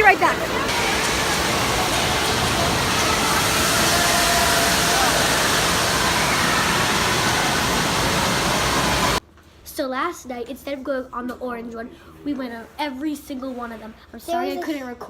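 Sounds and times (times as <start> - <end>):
rushing water: 0.0 - 9.2.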